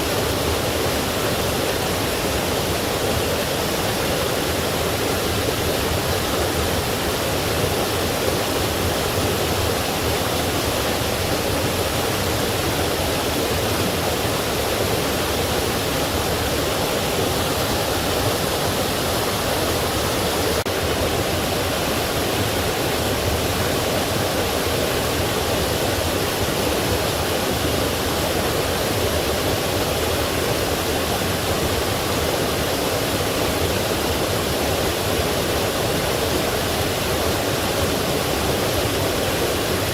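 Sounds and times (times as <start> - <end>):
stream and waterfall flowing: 0.0 - 39.9.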